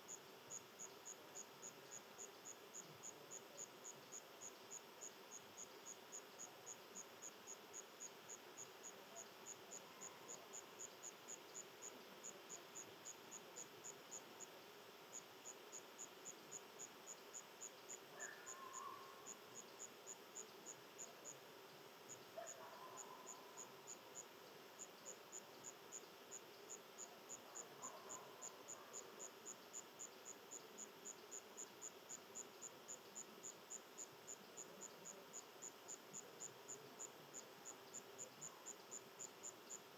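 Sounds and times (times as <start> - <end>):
insect chirping: 0.0 - 39.9.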